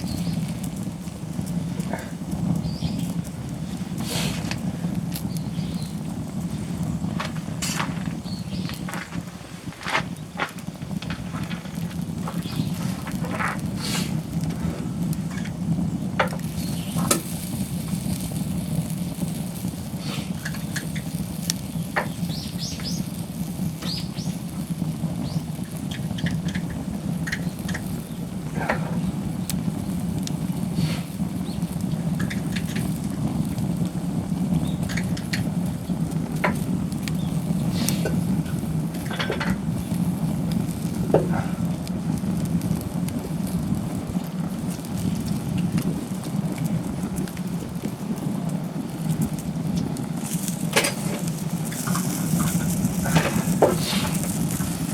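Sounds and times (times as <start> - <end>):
campfire crackling and popping: 0.0 - 54.9
food sizzling in skillet: 15.1 - 41.3, 49.0 - 54.9.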